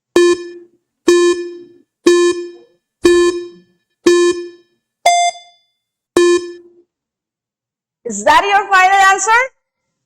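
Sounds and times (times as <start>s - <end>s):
high-pitched timer beep: 0.2s - 6.8s
low buzzy timer beeps: 0.2s - 6.8s.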